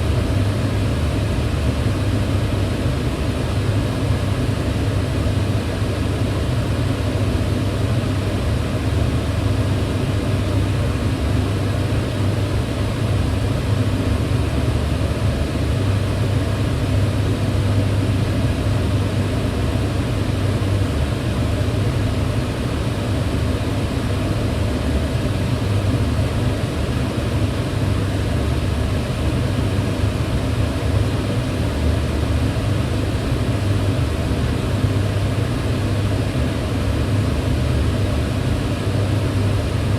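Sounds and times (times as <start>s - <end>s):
range hood fan rushing: 0.0s - 39.9s.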